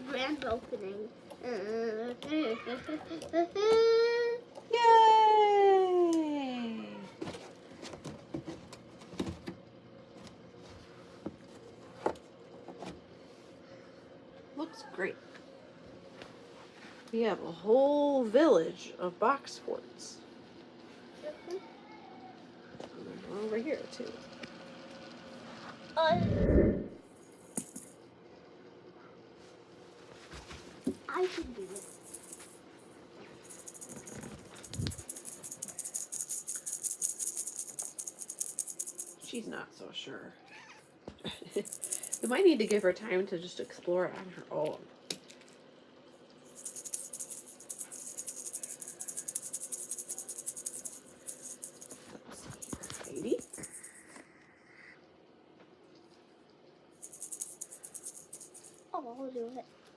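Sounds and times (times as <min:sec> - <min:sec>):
rapid rattling: 0:31.6 - 0:32.6, 0:33.3 - 0:39.4, 0:41.5 - 0:43.0, 0:46.5 - 0:54.0, 0:57.0 - 0:58.8.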